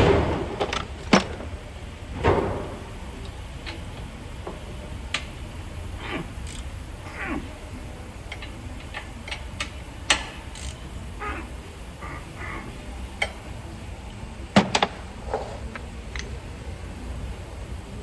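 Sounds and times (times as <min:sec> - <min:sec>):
sharp knocks: 0:00.0 - 0:03.1
steady low hum: 0:00.0 - 0:18.0
hand tools clicking and knocking: 0:08.3 - 0:11.4.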